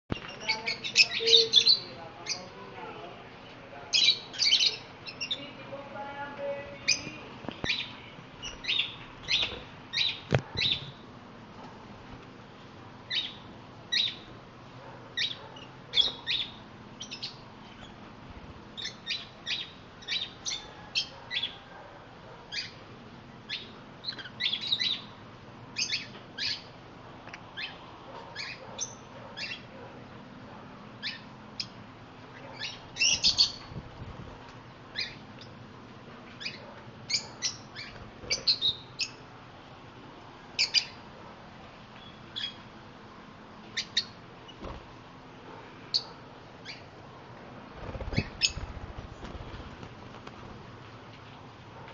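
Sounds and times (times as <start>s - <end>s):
parrots chirping: 0.1s - 2.6s, 3.9s - 5.5s, 6.8s - 11.0s, 13.1s - 14.3s, 15.2s - 18.0s, 18.8s - 21.6s, 22.5s - 22.8s, 23.5s - 25.2s, 25.8s - 26.8s, 27.6s - 29.7s, 31.0s - 33.6s, 34.9s - 35.5s, 36.3s - 39.2s, 40.6s - 41.0s, 42.0s - 42.7s, 43.8s - 44.6s, 45.9s - 46.9s, 47.9s - 48.8s.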